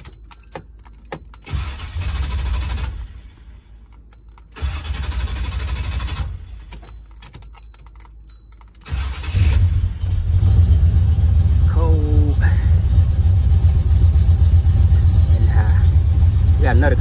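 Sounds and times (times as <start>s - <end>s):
key clicking in ignition: 0.0s - 10.2s
engine starter cranking: 0.0s - 10.8s.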